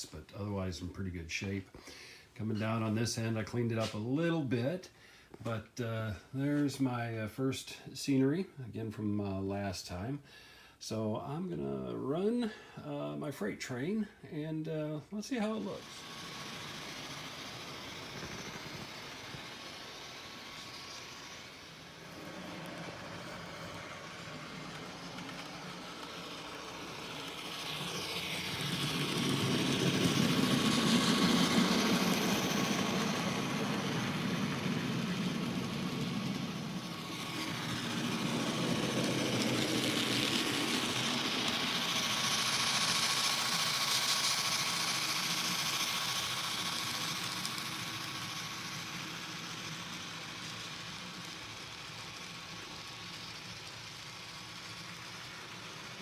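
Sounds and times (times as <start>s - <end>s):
faint motor whine: 11.3s - 56.0s
model train rumbling: 15.3s - 56.0s.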